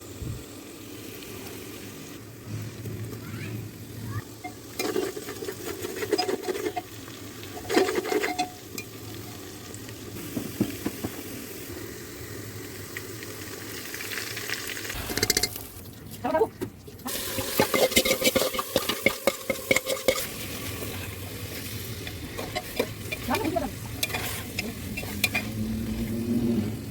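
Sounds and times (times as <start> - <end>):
food sizzling in a pot: 0.0 - 15.8, 17.0 - 26.9
spoon scraping and clinking pan: 4.4 - 6.9, 7.6 - 8.9, 15.0 - 15.7, 17.3 - 25.6.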